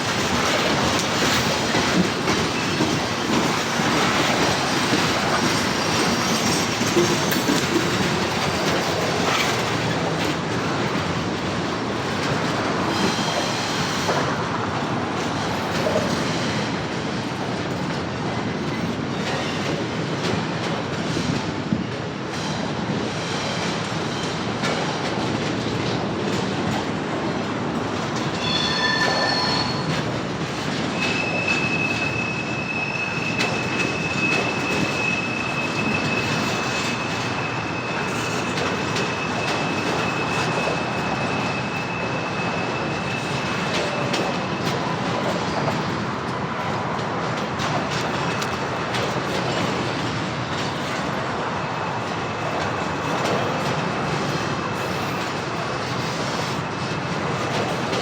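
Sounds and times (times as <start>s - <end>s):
freight train cars rumbling on rails: 0.0s - 58.0s
high-pitched wheel squeal: 28.3s - 30.1s.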